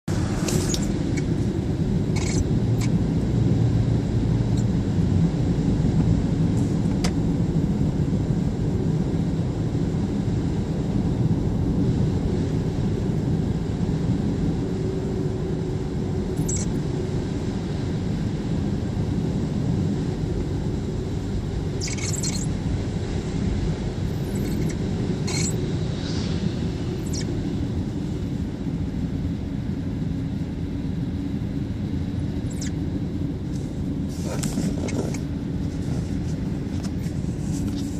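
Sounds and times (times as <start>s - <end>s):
car road rumble: 0.0s - 37.9s
high-pitched squeaks: 21.8s - 22.5s, 24.2s - 25.6s.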